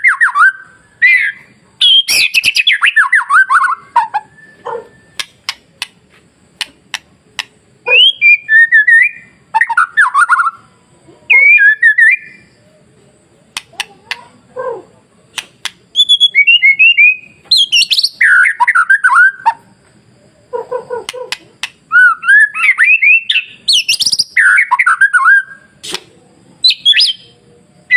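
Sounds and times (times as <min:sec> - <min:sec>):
bird singing whistled phrases: 0:00.0 - 0:05.3, 0:07.9 - 0:10.7, 0:11.3 - 0:12.5, 0:15.9 - 0:19.5, 0:21.9 - 0:26.0, 0:26.6 - 0:27.9
sharp bird clicks: 0:05.1 - 0:07.6, 0:13.5 - 0:14.4, 0:15.3 - 0:16.2, 0:21.0 - 0:21.9, 0:25.8 - 0:26.2.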